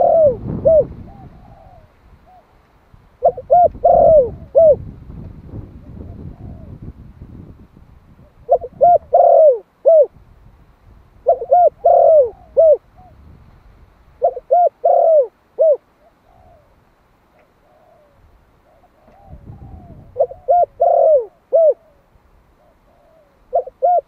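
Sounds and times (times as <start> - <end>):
dove cooing: 0.0 - 2.6, 3.2 - 4.9, 5.8 - 7.0, 8.2 - 10.2, 11.2 - 13.2, 14.2 - 16.8, 17.5 - 24.0.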